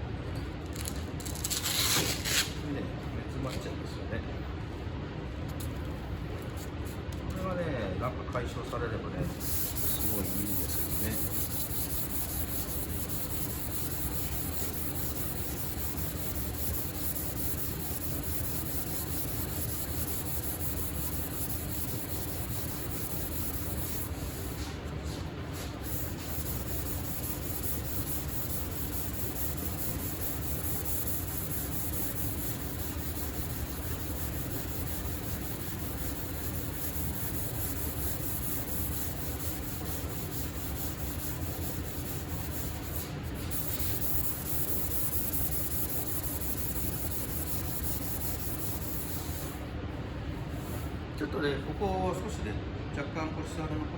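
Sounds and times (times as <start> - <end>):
faint low hum: 2.4 - 53.9
sandpaper rubbing on car panel: 9.3 - 49.6.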